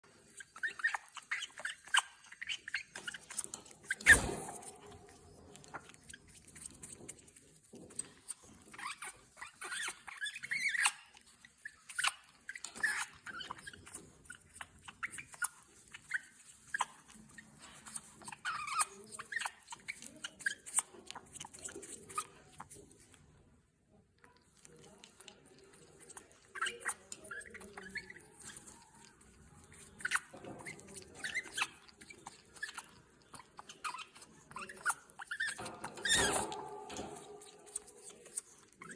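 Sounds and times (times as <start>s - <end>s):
parrot squeaks: 0.2s - 6.7s, 8.7s - 20.9s, 26.1s - 29.1s, 29.7s - 38.9s.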